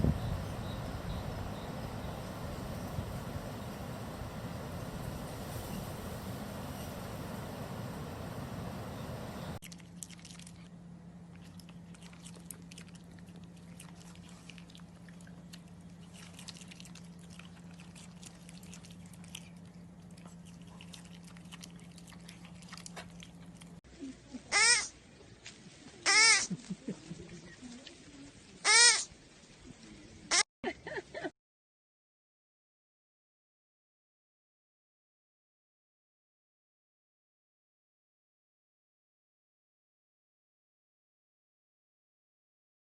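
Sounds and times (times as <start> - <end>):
steady low hum: 0.0 - 28.6
animal chewing: 9.6 - 10.7, 11.3 - 23.8
high wavering animal cries: 24.5 - 24.9, 26.1 - 26.6, 28.6 - 29.1.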